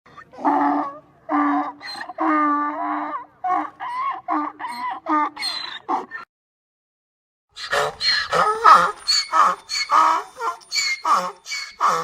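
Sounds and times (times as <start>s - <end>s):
donkey braying: 7.6s - 12.0s.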